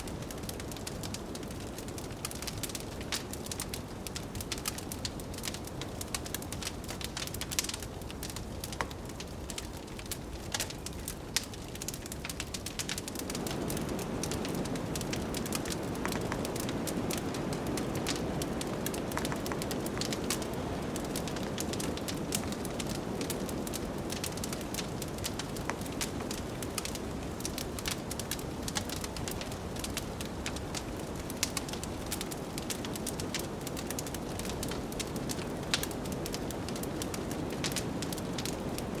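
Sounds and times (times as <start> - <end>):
wood fire crackling and popping: 0.0 - 39.0
blizzard wind rushing: 13.0 - 39.0.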